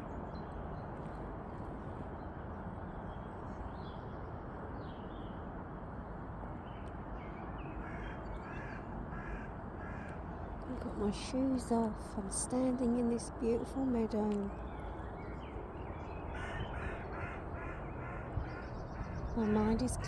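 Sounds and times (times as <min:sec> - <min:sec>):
low background rush: 0:09.6 - 0:20.0.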